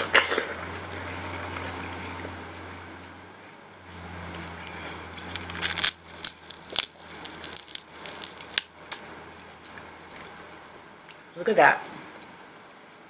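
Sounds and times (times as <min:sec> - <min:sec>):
watermelon being bitten and chewed: 0:00.0 - 0:02.5, 0:04.0 - 0:10.5.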